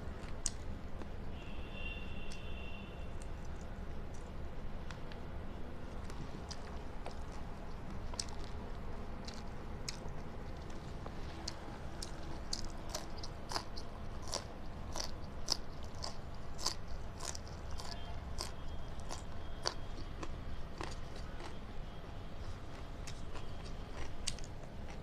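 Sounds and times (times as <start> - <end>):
person chewing crunchy food: 5.9 - 25.0.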